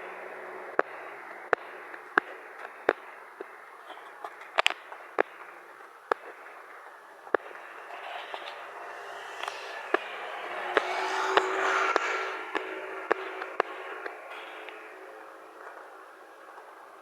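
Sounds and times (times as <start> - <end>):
sharp ticks: 7.3 - 15.8.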